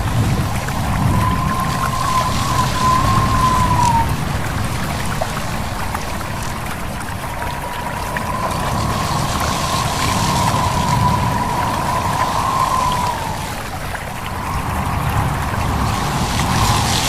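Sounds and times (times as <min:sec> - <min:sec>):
thin whistling tone: 0:00.0 - 0:04.2, 0:06.1 - 0:17.0
low rumble: 0:00.0 - 0:17.0
stream babbling: 0:00.0 - 0:17.0
wind: 0:00.0 - 0:17.0.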